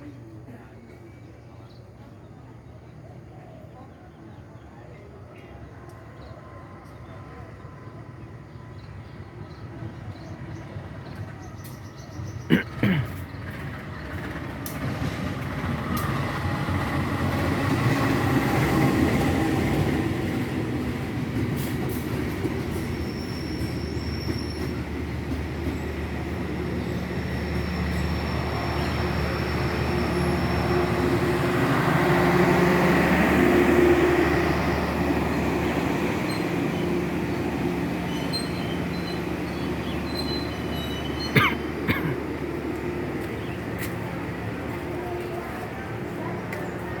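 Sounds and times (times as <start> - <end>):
train rumbling on track: 0.0 - 47.0
wheels squealing: 22.5 - 31.2, 37.6 - 41.8.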